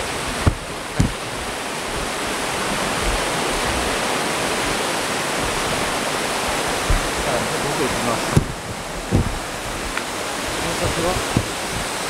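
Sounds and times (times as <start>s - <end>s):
waterfall rushing: 0.0s - 12.0s
low thump: 0.4s - 1.2s, 6.8s - 7.3s, 8.3s - 9.5s, 11.2s - 11.9s.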